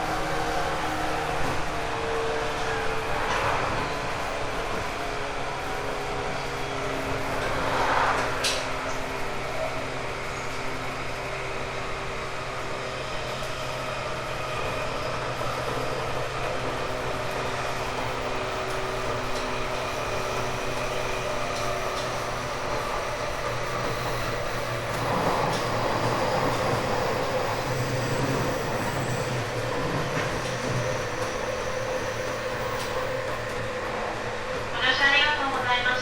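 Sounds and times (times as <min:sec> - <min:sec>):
electric train motor hum: 0:13.4 - 0:35.3
wheel-on-rail noise: 0:14.5 - 0:35.2.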